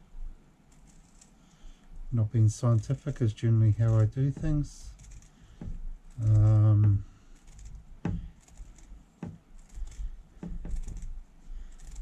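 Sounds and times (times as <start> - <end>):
light knocks and clicks: 3.8 - 11.2.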